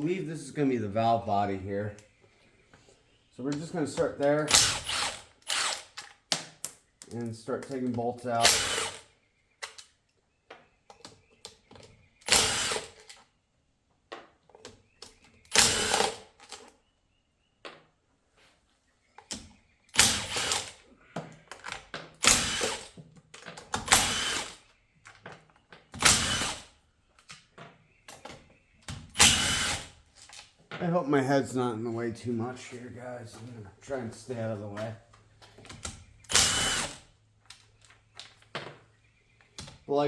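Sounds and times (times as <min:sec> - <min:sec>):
cordless power tool running: 0:04.5 - 0:05.8, 0:08.5 - 0:09.0, 0:12.3 - 0:13.0, 0:15.5 - 0:16.2, 0:20.0 - 0:20.7, 0:22.2 - 0:22.9, 0:23.9 - 0:24.6, 0:26.0 - 0:26.7, 0:29.2 - 0:29.9, 0:36.3 - 0:37.0.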